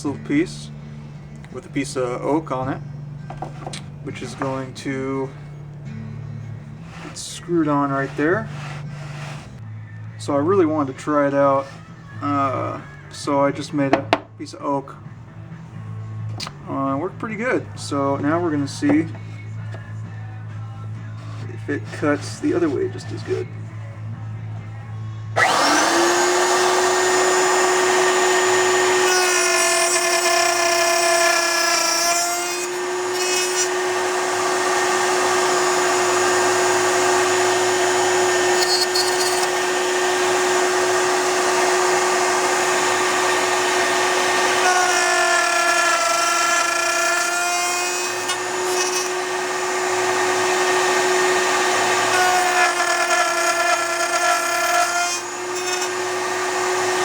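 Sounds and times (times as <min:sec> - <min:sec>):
router bit cutting wood: 0:00.0 - 0:09.6, 0:11.0 - 0:14.2, 0:21.0 - 0:23.6, 0:25.4 - 0:57.0
router whining: 0:00.0 - 0:09.6, 0:11.2 - 0:14.2, 0:25.2 - 0:57.0.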